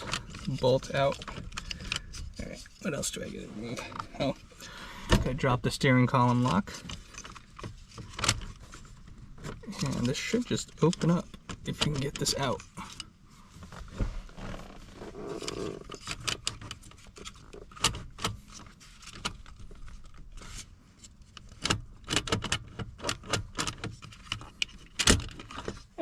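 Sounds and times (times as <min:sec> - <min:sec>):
plastic and metal parts clicking: 0:00.0 - 0:02.4.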